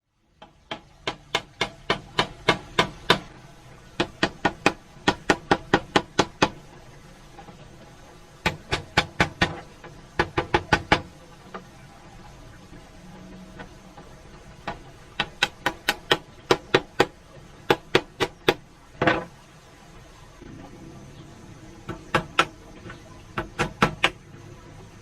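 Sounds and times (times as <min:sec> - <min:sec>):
hammer-like knocks: 0:00.4 - 0:03.3, 0:04.0 - 0:06.6, 0:08.4 - 0:09.6, 0:10.2 - 0:11.1, 0:14.6 - 0:19.3, 0:21.9 - 0:24.2.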